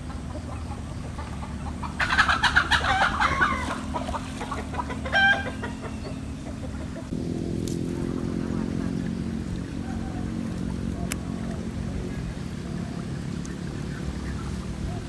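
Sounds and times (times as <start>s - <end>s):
chickens clucking: 0.0s - 15.0s
low steady hum: 0.0s - 15.0s
chicken squawk: 0.1s - 7.0s.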